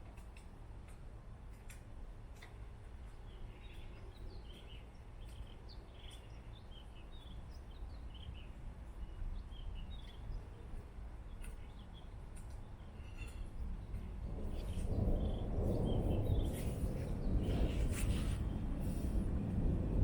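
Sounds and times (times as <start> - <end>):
small birds chirping: 2.4 - 18.6
steady low rumble: 7.4 - 20.0.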